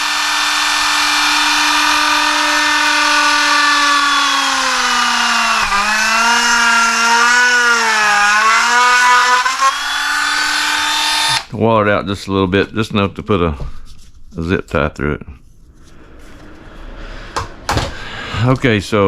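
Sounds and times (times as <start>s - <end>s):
small electric drill whining: 0.0s - 11.5s.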